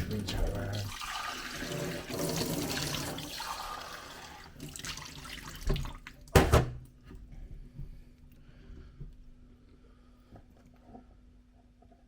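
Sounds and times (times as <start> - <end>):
tap water running into sink: 0.0 - 6.4.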